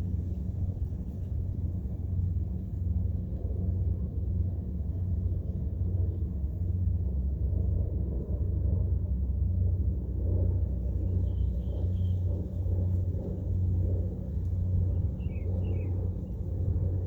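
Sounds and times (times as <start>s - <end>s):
low rumbling noise: 0.0s - 17.0s.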